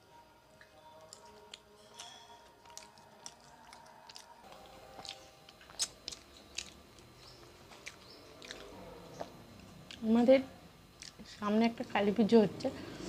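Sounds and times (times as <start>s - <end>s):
chewing with wet mouth clicks: 0.6s - 10.0s, 11.0s - 11.2s.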